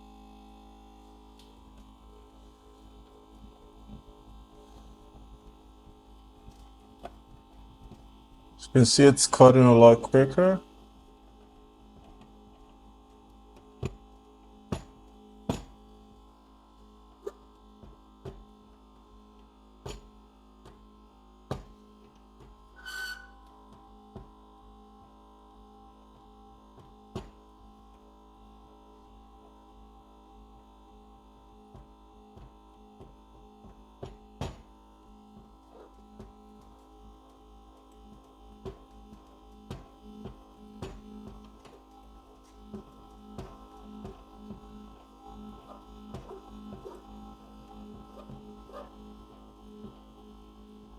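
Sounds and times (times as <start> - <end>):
screen separator vacuum hum: 8.6 - 10.6
brief squeak: 22.8 - 23.4.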